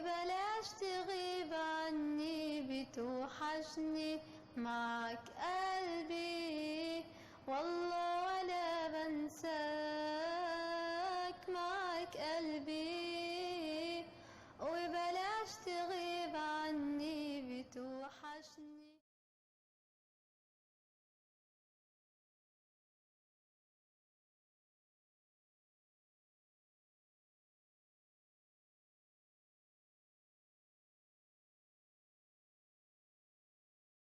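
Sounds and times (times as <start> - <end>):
girl singing with vibrato: 0.0 - 19.0
short breaths: 7.1 - 7.5, 14.1 - 14.6.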